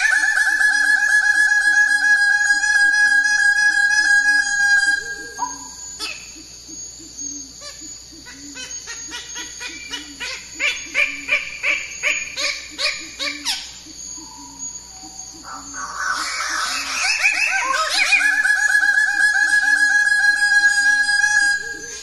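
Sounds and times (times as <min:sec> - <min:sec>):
bird low repeating note: 0:12.6 - 0:22.0.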